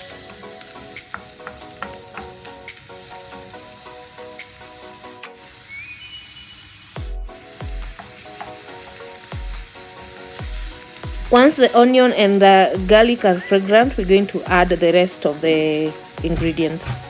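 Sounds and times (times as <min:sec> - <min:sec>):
music with deep bass thumps: 0:07.0 - 0:08.0, 0:12.8 - 0:13.1, 0:13.9 - 0:14.8, 0:16.2 - 0:17.0.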